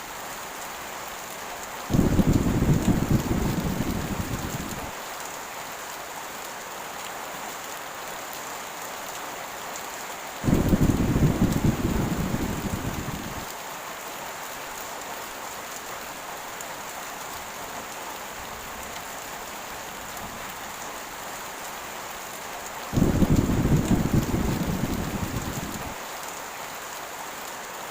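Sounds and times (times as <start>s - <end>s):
heavy rain: 0.0s - 27.9s
thunder clap rumbling: 1.9s - 4.9s, 10.4s - 13.5s, 23.0s - 26.0s.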